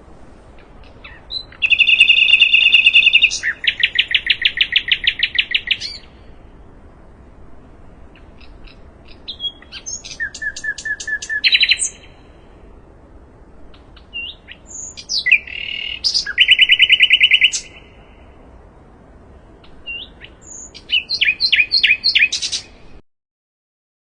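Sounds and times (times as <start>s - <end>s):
flycatcher singing: 0.8s - 6.3s, 8.1s - 12.4s, 13.7s - 18.3s, 19.6s - 22.8s.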